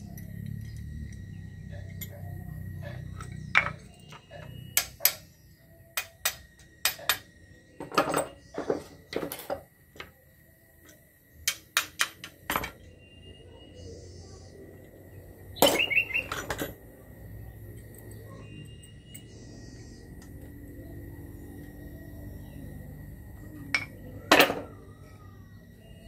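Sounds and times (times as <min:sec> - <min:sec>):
sharp knocks and clanks: 0:02.8 - 0:05.3, 0:06.0 - 0:10.2, 0:11.4 - 0:12.9.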